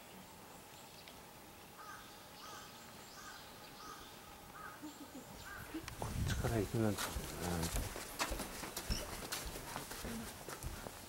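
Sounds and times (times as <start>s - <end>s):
bird calling faintly: 0.0s - 6.0s.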